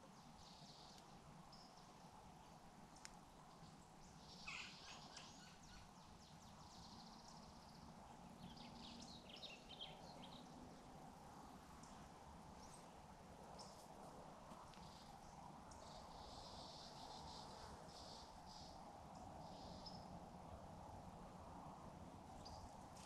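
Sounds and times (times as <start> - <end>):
faint bird chirping: 0.0 - 13.9, 14.6 - 20.2.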